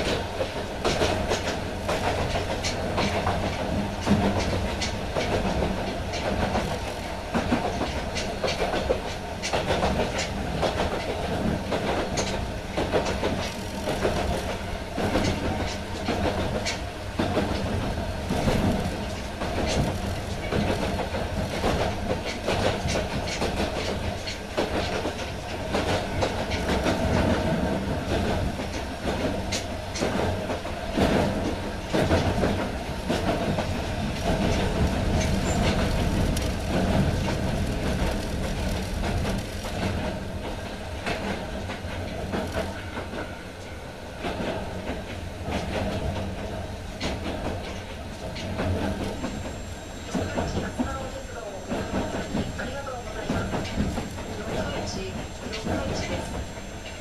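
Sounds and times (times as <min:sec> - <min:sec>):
wheels clicking over track: 0:00.0 - 0:43.3
train rumble: 0:00.0 - 0:57.0.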